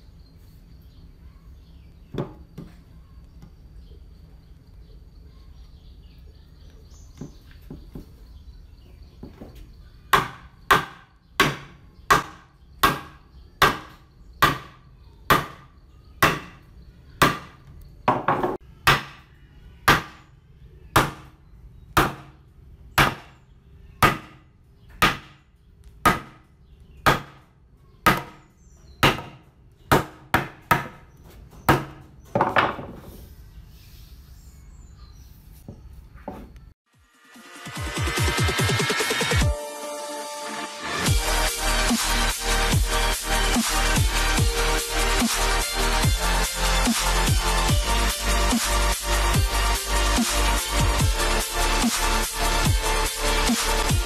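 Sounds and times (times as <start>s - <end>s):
hammer striking wood: 10.1s - 16.6s, 17.2s - 19.2s, 19.9s - 20.2s, 21.0s - 21.3s, 22.0s - 22.4s, 23.0s - 23.3s, 24.0s - 25.4s, 26.0s - 26.4s, 27.0s - 27.4s, 28.0s - 28.4s, 29.0s - 31.1s, 31.7s - 32.9s.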